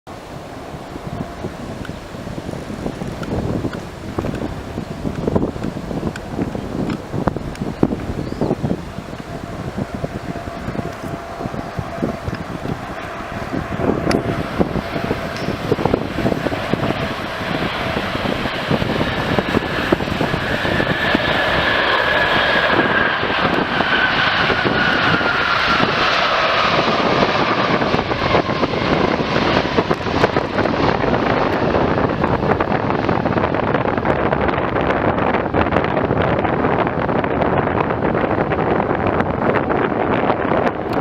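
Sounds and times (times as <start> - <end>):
jet plane roar and whine: 0.1 - 41.0.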